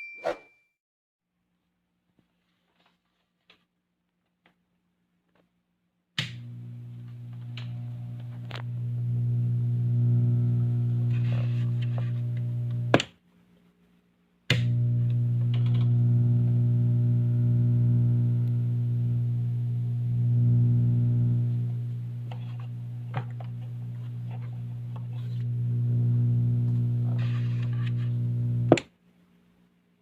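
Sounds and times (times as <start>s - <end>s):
click: 6.2s - 8.7s, 14.5s - 16.0s
speaker electrical hum: 6.2s - 13.0s, 14.5s - 28.8s.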